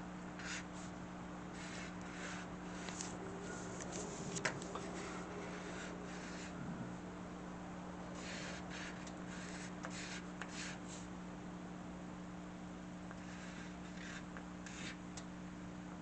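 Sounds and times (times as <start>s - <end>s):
low electrical hum: 0.0s - 16.0s
pen scratching on paper: 0.4s - 0.9s, 1.5s - 6.6s, 8.2s - 11.1s, 13.1s - 15.0s.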